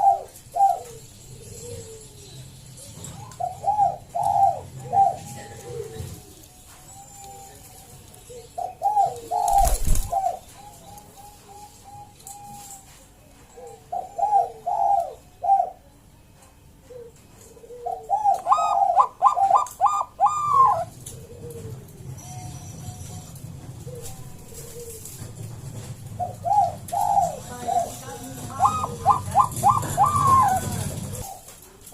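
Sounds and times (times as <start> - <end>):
dove cooing: 0.0 - 16.0, 16.8 - 31.9.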